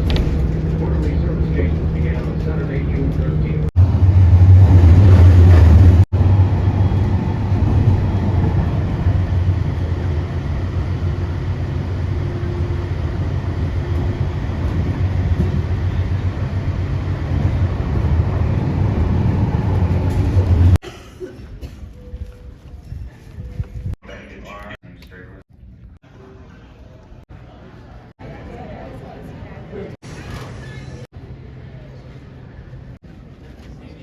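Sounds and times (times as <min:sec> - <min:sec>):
aircraft engines roaring: 0:00.0 - 0:20.8.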